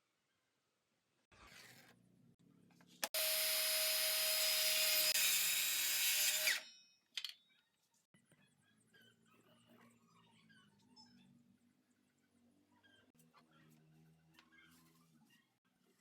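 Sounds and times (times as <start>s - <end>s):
power tool whining: 3.0s - 6.6s.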